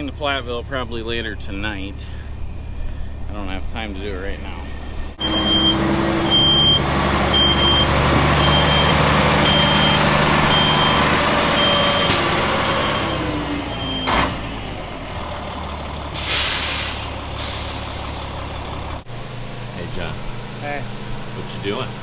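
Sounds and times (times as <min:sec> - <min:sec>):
heavy vehicle engine running: 0:00.0 - 0:22.0
backup alarm beeping: 0:05.2 - 0:14.3
burst of hiss: 0:16.2 - 0:18.4.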